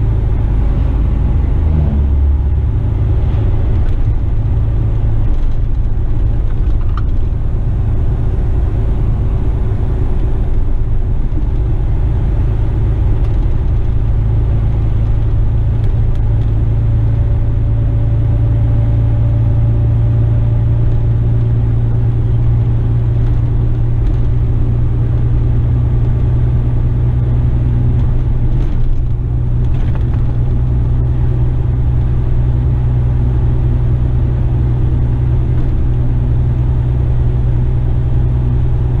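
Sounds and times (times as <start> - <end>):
road noise: 0.0 - 39.0
truck diesel engine droning: 0.0 - 39.0.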